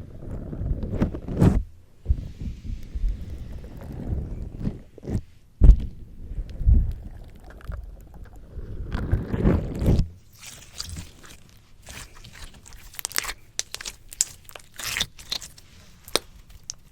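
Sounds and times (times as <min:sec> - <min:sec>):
slime squishing against microphone: 0:00.1 - 0:16.9
sticky pops and crackles: 0:08.9 - 0:16.9.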